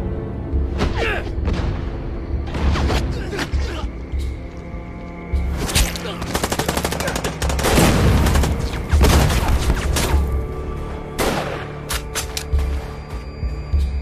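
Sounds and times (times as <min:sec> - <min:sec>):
dramatic film music: 0:00.0 - 0:14.0
machine gun firing: 0:06.2 - 0:09.6.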